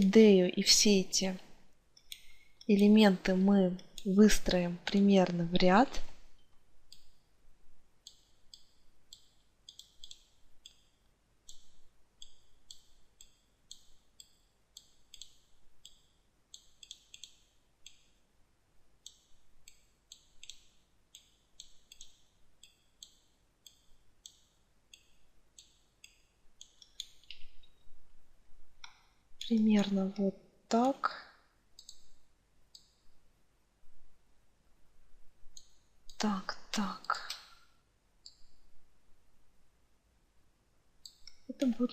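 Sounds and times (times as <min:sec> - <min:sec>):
computer mouse clicking: 0:02.0 - 0:02.9, 0:06.9 - 0:07.2, 0:08.0 - 0:18.2, 0:19.0 - 0:27.8, 0:31.8 - 0:33.0, 0:35.5 - 0:36.2, 0:36.9 - 0:38.5, 0:41.0 - 0:41.5.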